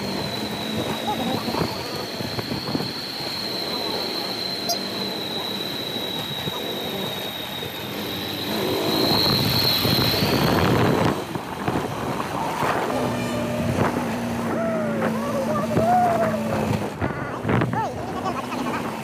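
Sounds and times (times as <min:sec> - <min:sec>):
wind noise on microphone: 0:00.0 - 0:03.0, 0:08.7 - 0:18.1
thin high whine: 0:00.0 - 0:17.5
motorcycle riding: 0:00.0 - 0:19.0.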